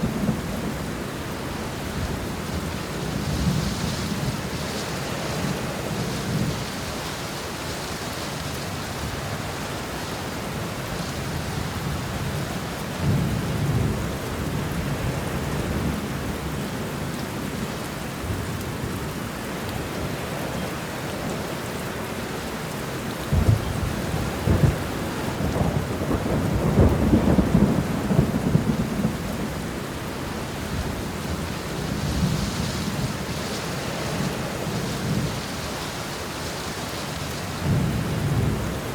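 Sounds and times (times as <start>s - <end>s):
steady rain: 0.0s - 38.9s
rolling thunder: 23.3s - 29.8s.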